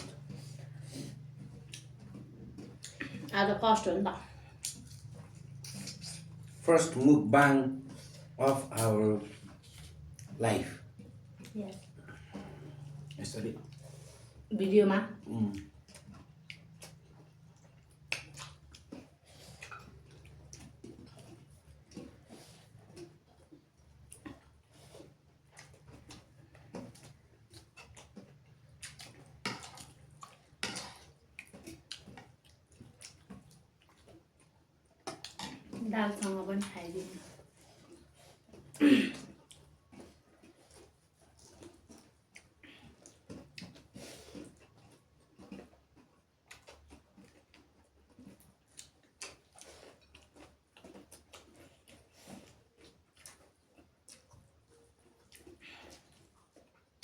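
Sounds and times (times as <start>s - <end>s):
wet chewing: 0.0s - 57.0s
mouth clicks and smacks: 17.8s - 19.0s.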